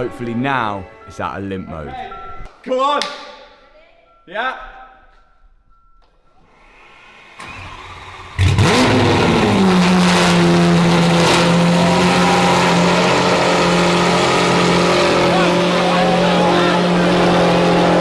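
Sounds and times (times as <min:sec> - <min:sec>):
car engine starting and idling: 0:07.4 - 0:18.0.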